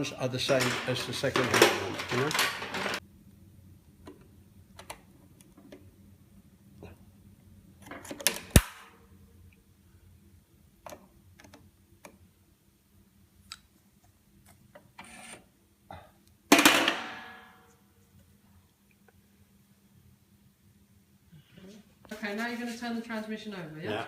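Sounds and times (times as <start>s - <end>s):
metal parts clicking and knocking: 0.5s - 3.0s.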